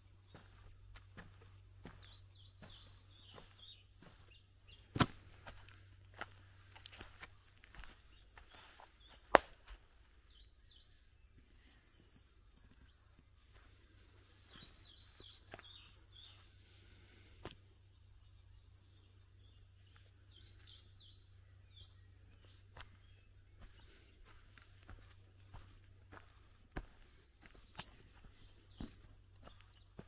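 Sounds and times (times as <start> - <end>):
songbird chirping: 0.0 - 30.0
soft footsteps: 0.1 - 10.2, 21.8 - 30.0.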